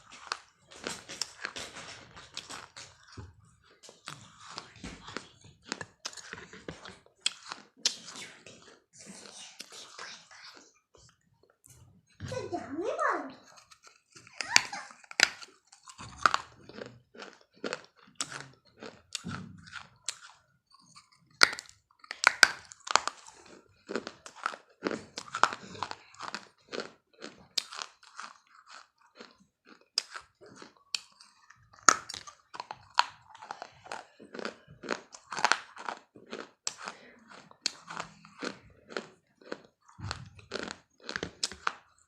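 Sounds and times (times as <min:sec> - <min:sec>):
crunching hard brittle pieces: 0:13.5 - 0:36.9.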